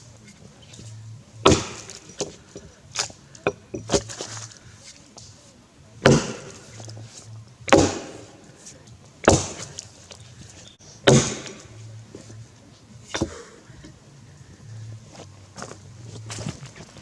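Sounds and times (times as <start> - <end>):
axe chopping into log: 1.4 - 4.5, 6.0 - 7.1, 7.7 - 8.5, 9.2 - 9.9, 11.0 - 12.3, 13.1 - 13.6.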